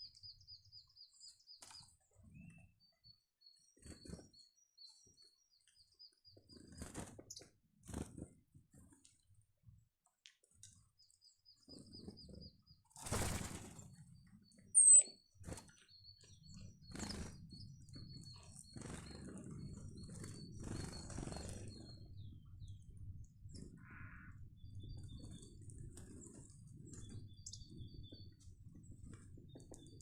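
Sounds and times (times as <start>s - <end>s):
small birds calling: 0.0s - 8.0s, 10.8s - 22.8s, 23.4s - 28.5s
bird trill: 14.6s - 22.0s
sharp bird chirp: 14.8s - 15.2s.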